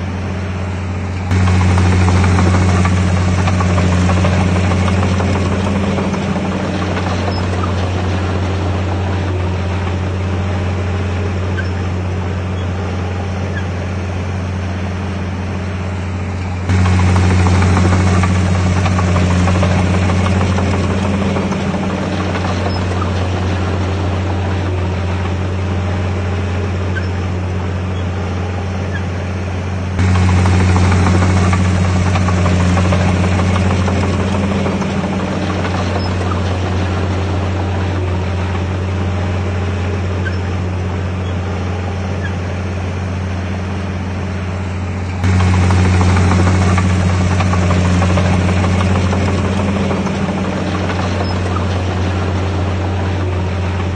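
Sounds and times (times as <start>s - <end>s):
bulldozer diesel engine drone: 0.0s - 53.9s.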